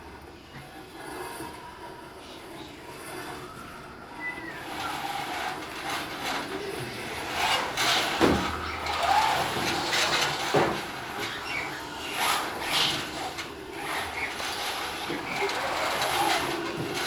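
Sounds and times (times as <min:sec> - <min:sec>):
rushing noises: 0:04.6 - 0:17.0.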